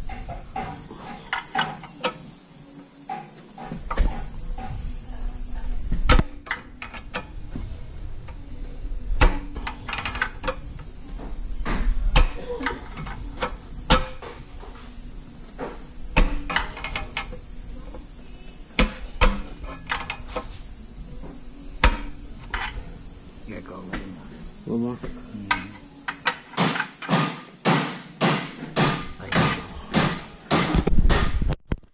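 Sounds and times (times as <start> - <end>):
metallic knocks and clanks: 0.0 - 2.3, 9.2 - 14.8, 15.6 - 18.0.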